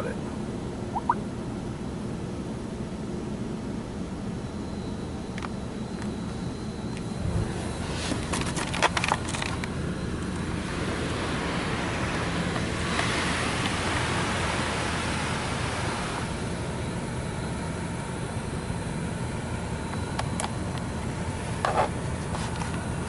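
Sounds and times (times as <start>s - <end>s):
spray nozzles hissing: 10.2s - 16.4s.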